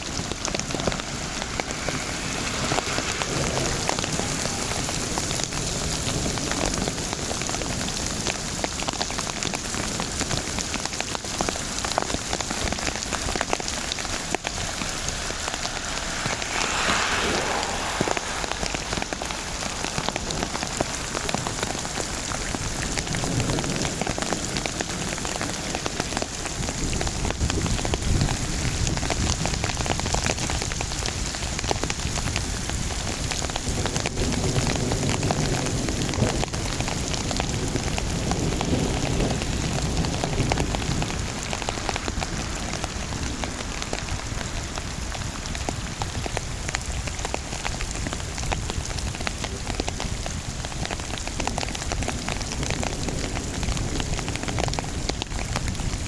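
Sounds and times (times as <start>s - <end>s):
low rumble: 0.0s - 6.6s, 12.4s - 23.4s
rain falling on surfaces: 0.0s - 56.0s.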